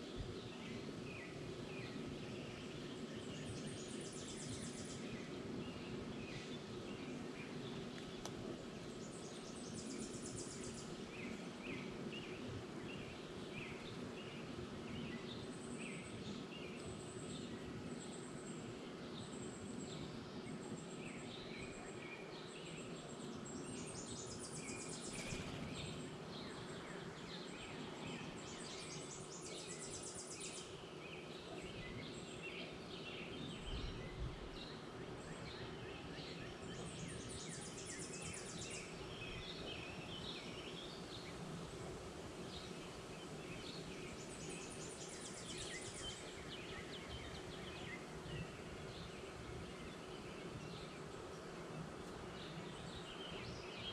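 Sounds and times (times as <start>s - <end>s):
faint steady hum: 0.0s - 53.9s
songbirds chirping: 0.0s - 53.9s.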